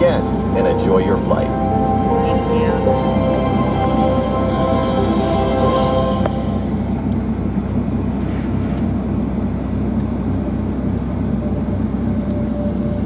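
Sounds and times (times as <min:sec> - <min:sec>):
aircraft cabin engine drone: 0:00.0 - 0:13.0.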